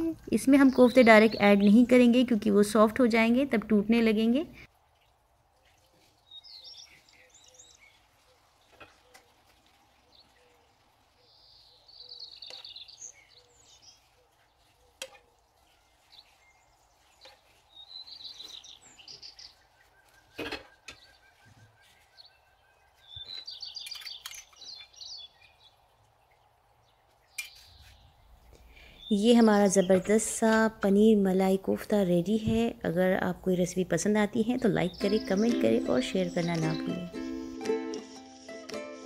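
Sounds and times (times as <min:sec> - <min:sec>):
bird chirping: 0:06.1 - 0:30.4, 0:34.6 - 0:37.6.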